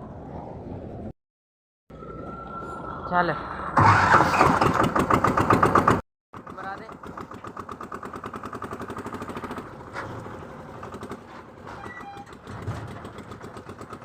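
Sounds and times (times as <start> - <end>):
tractor engine running: 3.8 - 14.0.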